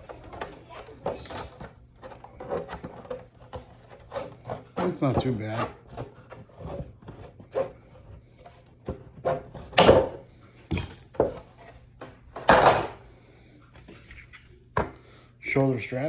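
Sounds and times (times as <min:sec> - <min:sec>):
rustling scrapes: 0:00.0 - 0:09.7.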